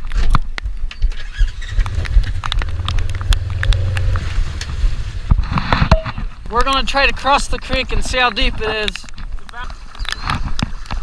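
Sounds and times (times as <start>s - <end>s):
low engine hum: 1.3s - 5.6s
knocks and thumps: 1.7s - 6.5s.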